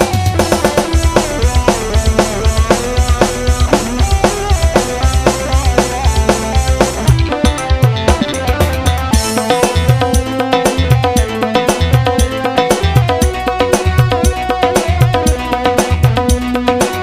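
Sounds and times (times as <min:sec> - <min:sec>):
drum kit beat: 0:00.0 - 0:17.0
instrumental melodic line: 0:00.0 - 0:17.0.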